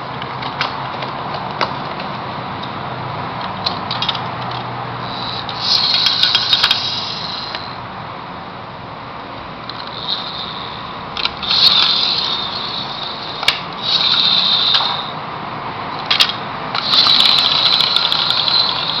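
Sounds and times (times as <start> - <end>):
toy truck gears whirring: 3.9 - 7.8, 9.7 - 15.2, 16.0 - 19.0
sharp click: 13.4 - 15.0.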